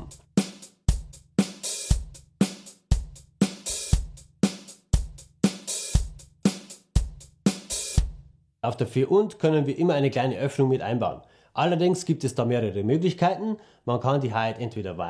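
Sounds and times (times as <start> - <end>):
snare drum: 0.0 - 8.2
bass drum: 0.0 - 8.4.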